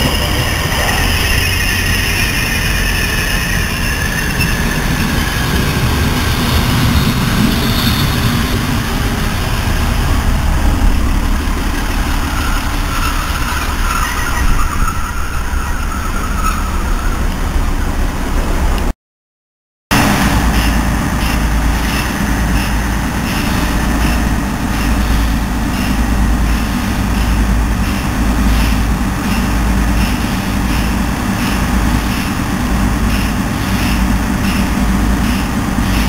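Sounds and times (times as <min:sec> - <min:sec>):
high brake squeal: 0:00.0 - 0:05.5, 0:12.1 - 0:17.8
train wheels rumbling: 0:00.0 - 0:18.9, 0:19.9 - 0:36.0.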